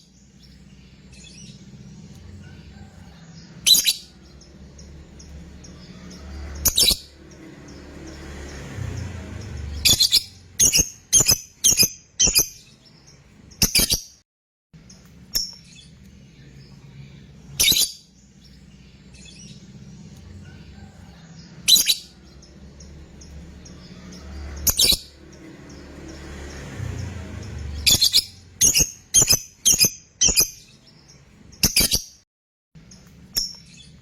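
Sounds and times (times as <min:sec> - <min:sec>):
lovebird high-pitched calls: 0:03.4 - 0:08.2, 0:09.3 - 0:12.9, 0:13.5 - 0:14.2, 0:17.5 - 0:18.2, 0:21.6 - 0:25.8, 0:27.5 - 0:30.9, 0:31.6 - 0:32.2.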